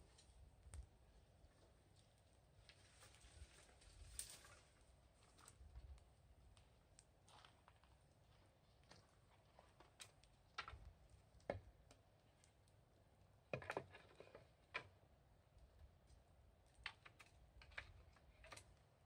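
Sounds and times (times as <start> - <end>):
wood fire crackling and popping: 5.3 - 13.2.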